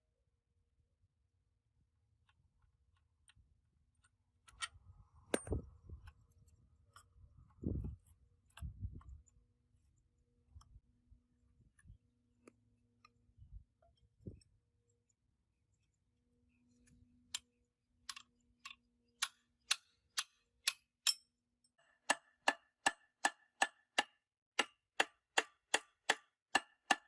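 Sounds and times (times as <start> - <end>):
dull knocks of metal parts: 4.5 - 6.3.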